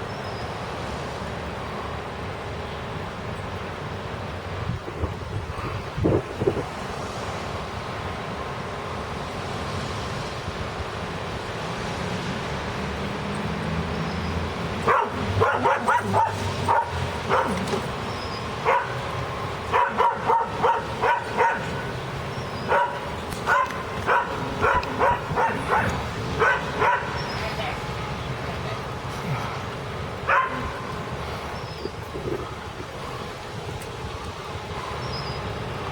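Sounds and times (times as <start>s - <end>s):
wind noise: 4.3s - 35.9s
dog barking: 14.8s - 17.9s, 18.6s - 19.0s, 19.7s - 21.9s, 22.6s - 27.4s, 30.3s - 30.8s.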